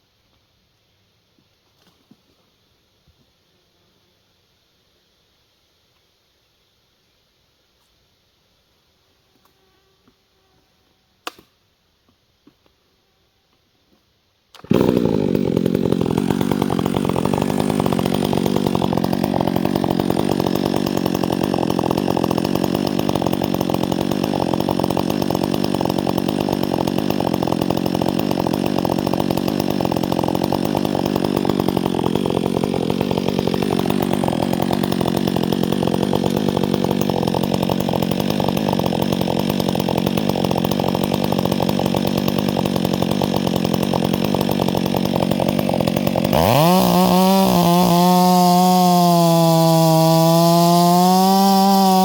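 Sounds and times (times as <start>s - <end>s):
chainsaw running at high revs: 14.6s - 52.0s.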